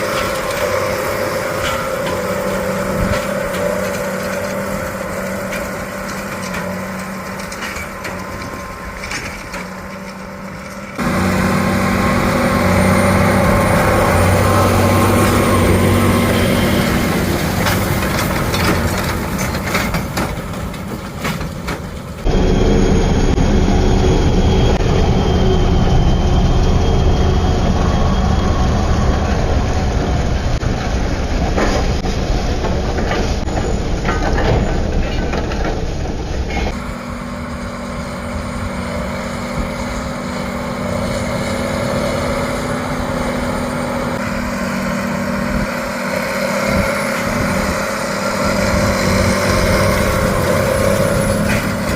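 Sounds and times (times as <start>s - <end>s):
farm machinery engines running: 0.0s - 51.9s.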